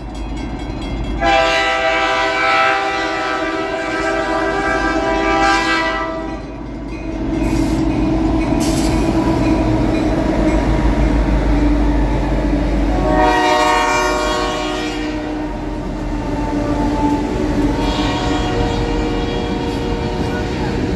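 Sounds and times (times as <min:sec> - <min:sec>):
low rumble of passing train: 0:00.0 - 0:20.9
locomotive horn blasts: 0:01.2 - 0:06.4, 0:12.8 - 0:20.9.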